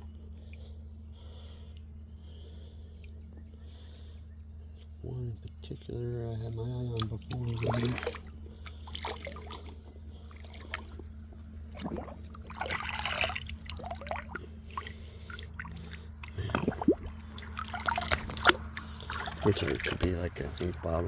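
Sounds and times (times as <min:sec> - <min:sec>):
creek water trickling and splashing: 0:06.5 - 0:21.0.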